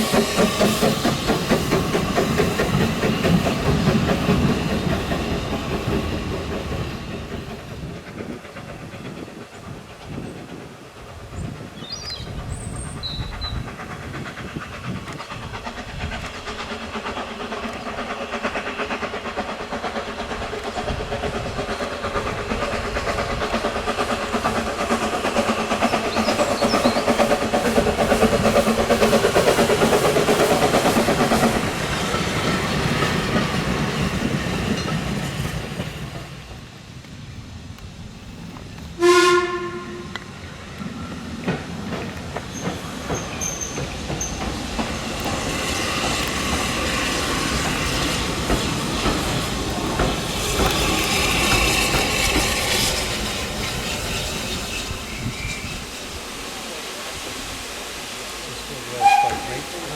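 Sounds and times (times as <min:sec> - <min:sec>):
steam train clattering: 0:00.0 - 0:59.9
train whistle blast: 0:39.0 - 0:40.2, 0:59.0 - 0:59.9.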